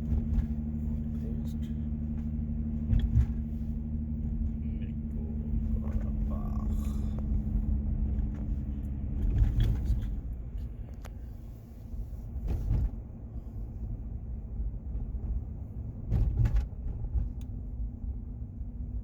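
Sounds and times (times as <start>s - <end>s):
thumps from road bumps: 0.0s - 4.6s, 5.6s - 11.2s, 11.9s - 13.4s, 14.8s - 17.6s
car engine and road rumble: 0.0s - 19.0s.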